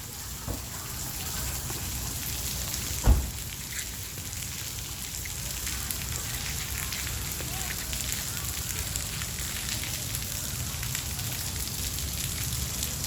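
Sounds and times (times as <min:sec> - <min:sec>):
steady rain: 0:00.0 - 0:13.0
low thump: 0:03.0 - 0:03.4.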